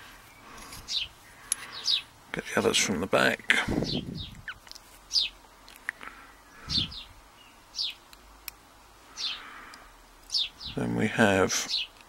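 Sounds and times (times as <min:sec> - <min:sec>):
small bird chirping: 0:00.1 - 0:02.1, 0:03.7 - 0:05.4, 0:06.3 - 0:08.1, 0:09.1 - 0:09.6, 0:10.2 - 0:11.0, 0:11.6 - 0:12.0
faint clicks: 0:09.7 - 0:10.4.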